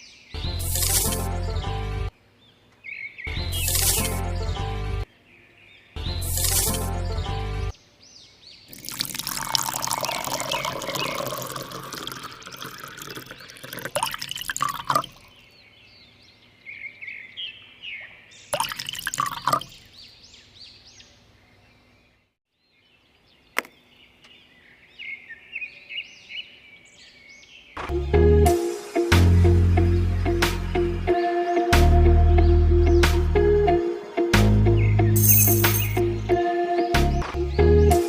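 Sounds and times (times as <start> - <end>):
birds chirping: 0.0 - 28.2, 29.4 - 38.0
water pouring: 8.7 - 15.3, 18.6 - 19.8
water splashes: 8.7 - 15.3, 18.6 - 19.8.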